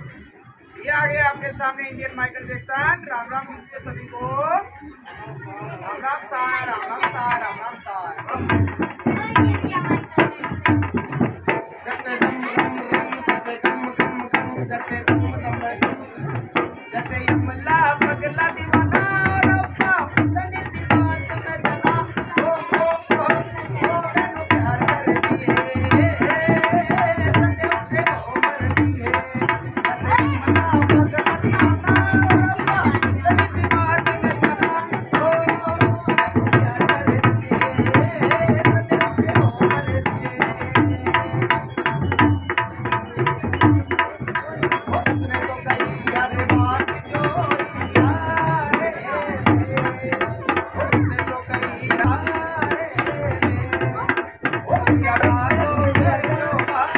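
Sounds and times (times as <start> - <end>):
upbeat dance song with drums: 8.2 - 56.9.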